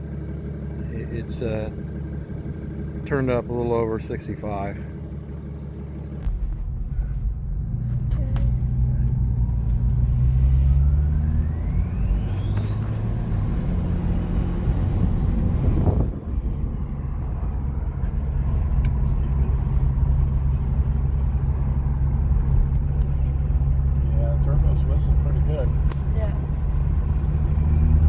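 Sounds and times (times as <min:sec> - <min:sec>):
diesel engine low drone: 0:00.0 - 0:28.0
turbo whistling whine: 0:05.5 - 0:20.5.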